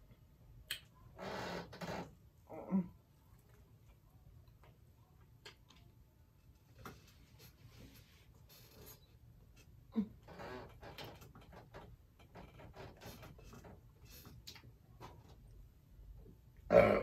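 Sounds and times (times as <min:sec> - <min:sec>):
mouth clicks and smacks: 0:00.6 - 0:01.0.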